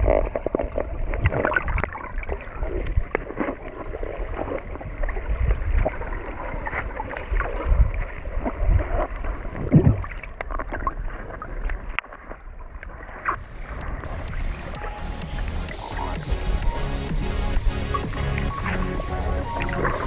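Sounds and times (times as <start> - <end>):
muffled water sloshing and splashing: 0.0 - 20.0
low rumbling: 13.3 - 20.0.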